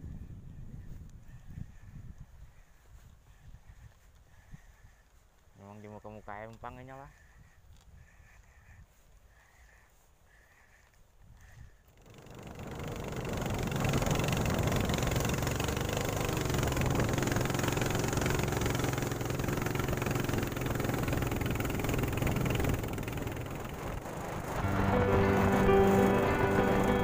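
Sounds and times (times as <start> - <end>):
boat engine running: 11.9 - 27.0.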